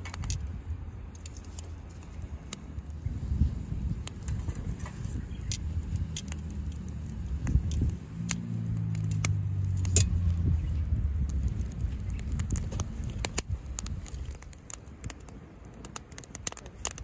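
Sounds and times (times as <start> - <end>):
low engine hum: 0.0 - 14.4
firewood crackling and popping: 0.0 - 17.0.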